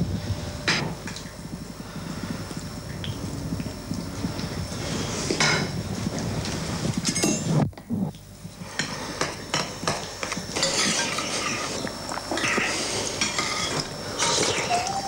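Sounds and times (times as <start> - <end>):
utensils clinking against dishes: 7.1 - 7.6, 8.8 - 15.0.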